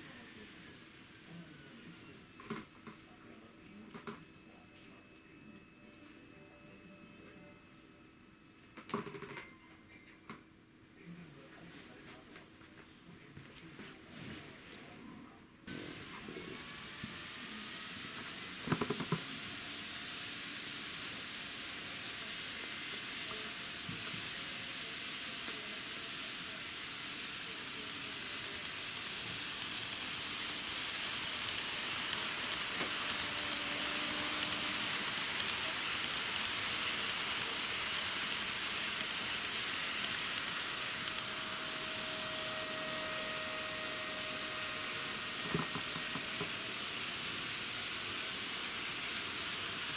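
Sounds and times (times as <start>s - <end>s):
model train rolling on track: 0.0s - 4.2s, 15.7s - 49.9s
faint motor whine: 0.0s - 49.9s.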